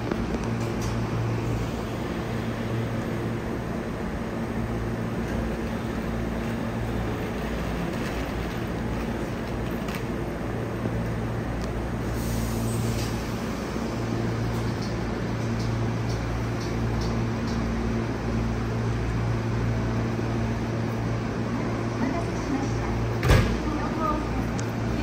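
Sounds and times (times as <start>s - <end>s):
electric train running: 0.4s - 11.5s.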